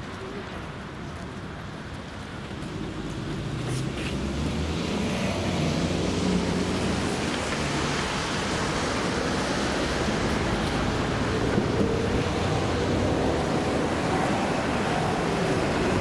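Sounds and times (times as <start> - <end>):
train wheels rumbling on rails: 8.9 - 16.0.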